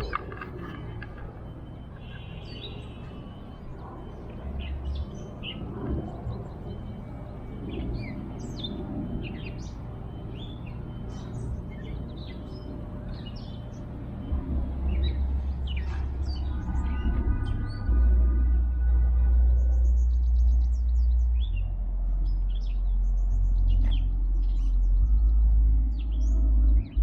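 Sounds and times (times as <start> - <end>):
birds chirping: 0.0 - 27.0
low rumble: 14.0 - 27.0.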